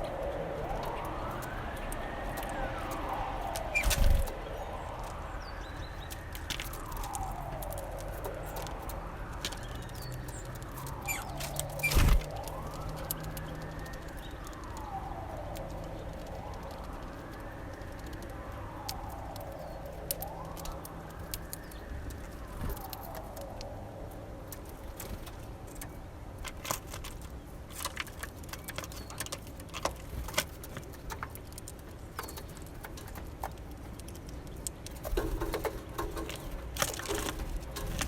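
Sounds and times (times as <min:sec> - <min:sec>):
distant siren wailing: 0:00.0 - 0:26.3.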